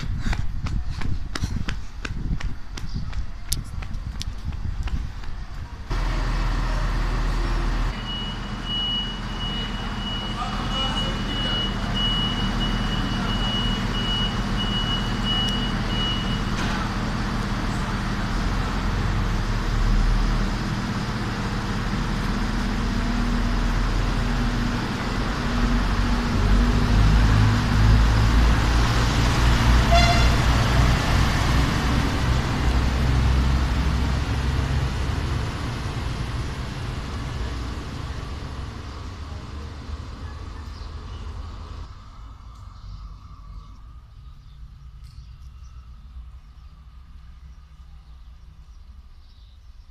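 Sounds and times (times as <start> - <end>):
diesel train engine running: 3.5 - 44.3
train horn toot: 29.8 - 30.6.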